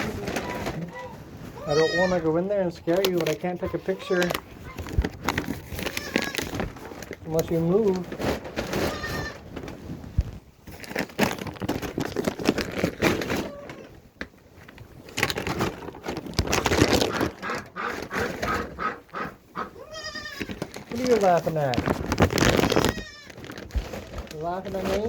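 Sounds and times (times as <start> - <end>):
rustling and crackling in hay: 0.0 - 25.0
goat bleat: 1.6 - 2.4, 8.9 - 9.4, 19.6 - 20.6.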